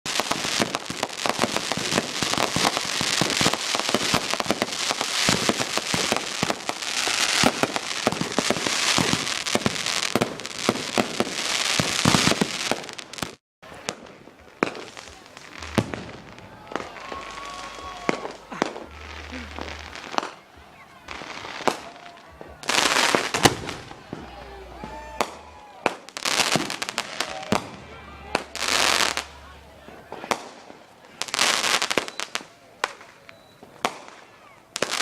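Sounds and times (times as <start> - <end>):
fireworks bangs and crackling: 0.1 - 35.0.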